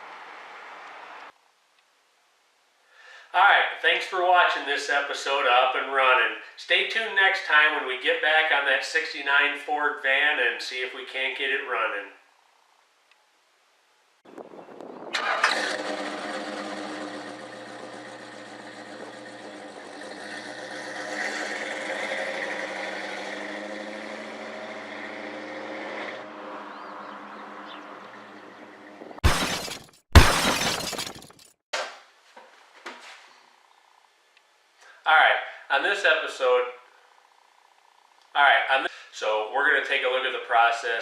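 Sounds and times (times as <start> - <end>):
car engine running: 15.2 - 28.8.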